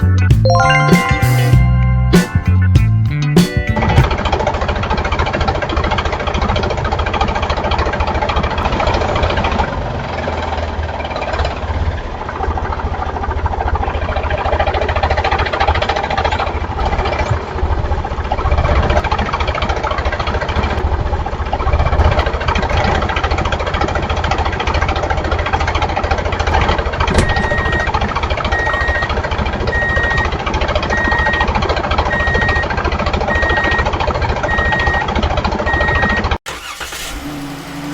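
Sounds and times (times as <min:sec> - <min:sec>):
background music: 0:00.0 - 0:04.1
high beep: 0:00.5 - 0:03.0, 0:27.2 - 0:27.9
tractor engine running: 0:03.8 - 0:37.9.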